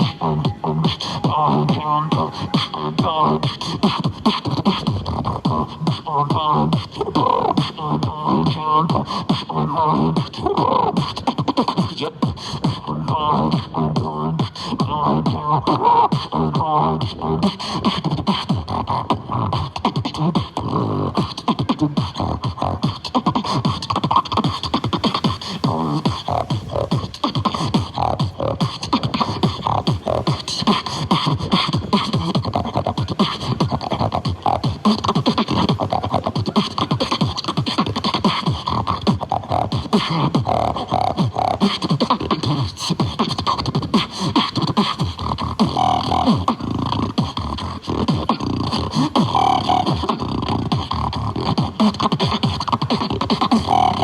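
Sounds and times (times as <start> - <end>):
person beatboxing: 0.0 - 54.0
pitched vocal lines: 0.0 - 54.0.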